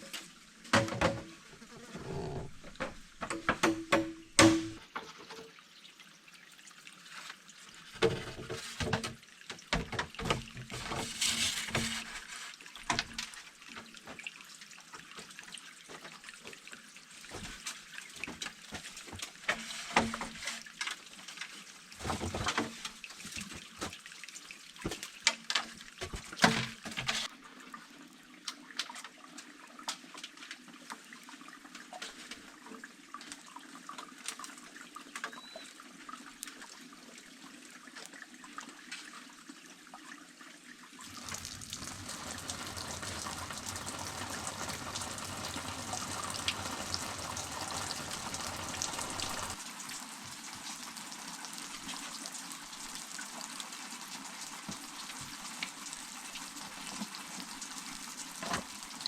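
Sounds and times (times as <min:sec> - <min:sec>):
water splashing and trickling: 0:00.0 - 0:59.0
knocks: 0:02.7 - 0:04.8.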